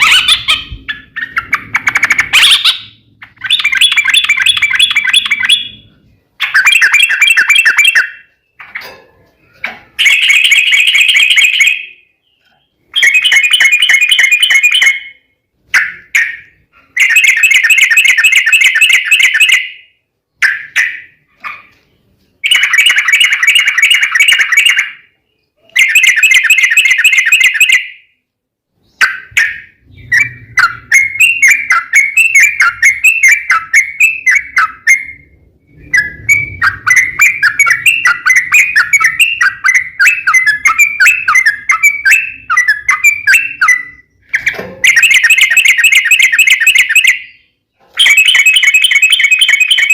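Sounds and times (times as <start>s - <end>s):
quick bird chirping: 0.0s - 8.9s
bird singing trilled phrases: 0.0s - 49.9s.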